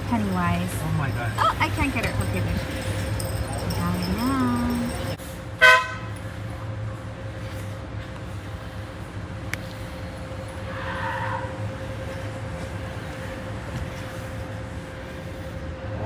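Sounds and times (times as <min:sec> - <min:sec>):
car idling hum: 0:00.0 - 0:05.2.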